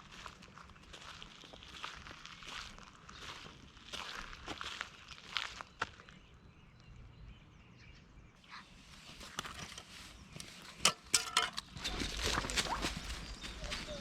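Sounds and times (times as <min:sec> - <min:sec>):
footsteps crunching on forest floor: 0:00.0 - 0:06.3, 0:11.7 - 0:14.0.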